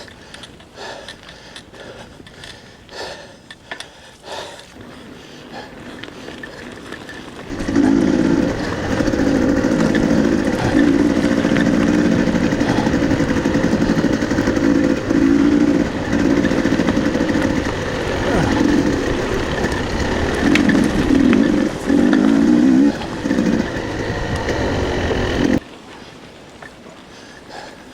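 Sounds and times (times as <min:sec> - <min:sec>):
motor running in spurts: 0:04.7 - 0:25.6.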